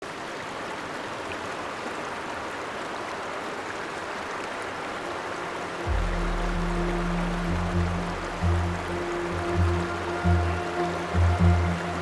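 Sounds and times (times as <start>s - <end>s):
river water rushing: 0.2s - 12.0s
low sustained music notes: 4.7s - 12.0s.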